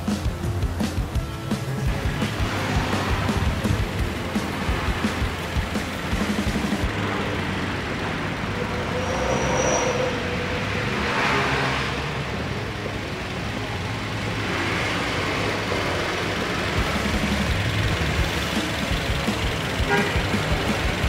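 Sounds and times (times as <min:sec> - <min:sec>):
car engine idling: 0:00.0 - 0:21.0
brief high whistle: 0:08.9 - 0:10.3.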